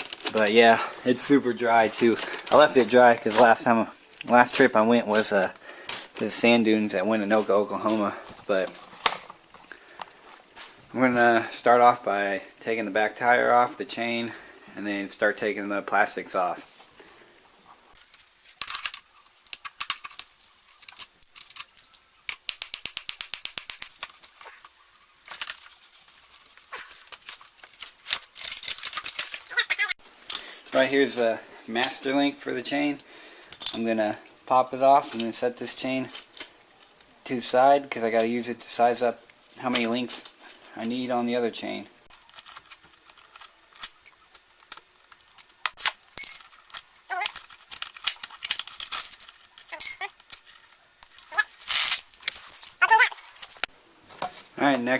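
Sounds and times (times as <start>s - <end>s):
metal chain clinking and rattling: 1.7s - 3.6s, 4.3s - 6.3s, 18.0s - 29.9s, 42.1s - 53.7s
socket ratchet clicking: 21.3s - 23.9s
metal tool clinks: 48.9s - 50.4s.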